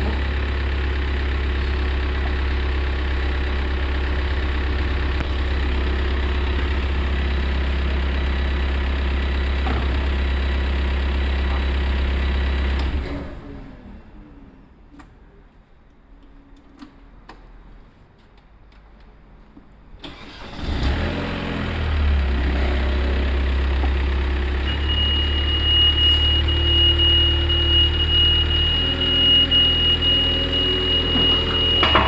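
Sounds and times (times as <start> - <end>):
diesel engine cranking and idling: 0.0 - 15.1, 19.9 - 32.0
high-pitched tone: 24.6 - 32.0.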